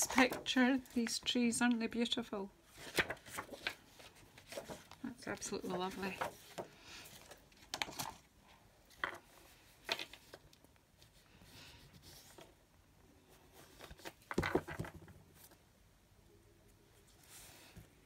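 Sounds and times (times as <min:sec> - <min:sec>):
paper rustling: 0:00.0 - 0:01.3, 0:02.7 - 0:08.3.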